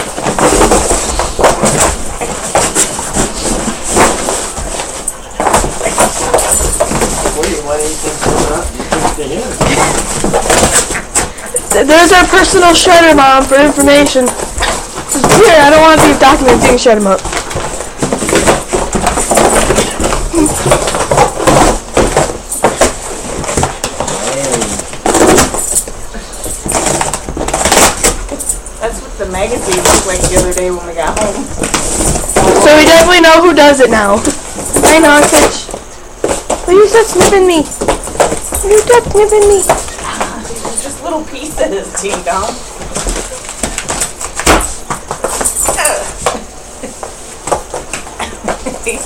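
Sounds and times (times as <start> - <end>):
dog chewing cardboard: 0.0 - 28.7.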